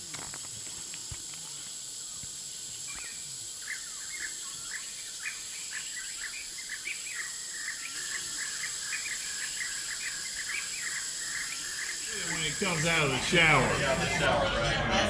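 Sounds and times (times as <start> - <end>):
insects buzzing: 0.0 - 14.4
birds calling: 2.9 - 14.3.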